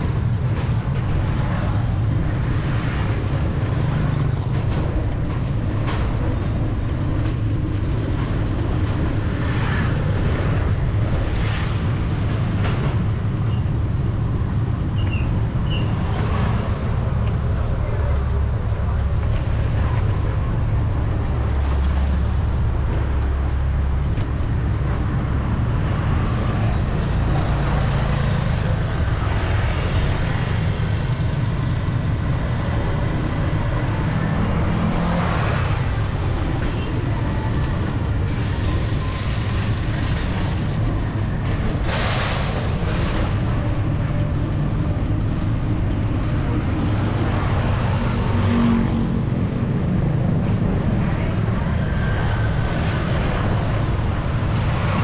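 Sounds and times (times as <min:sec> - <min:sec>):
traffic engines rumbling: 0:00.0 - 0:55.0
passing vehicles hissing: 0:25.4 - 0:55.0.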